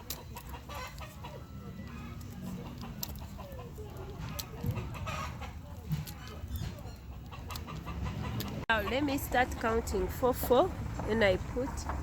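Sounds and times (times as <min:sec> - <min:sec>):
hens clucking: 0:00.0 - 0:09.6.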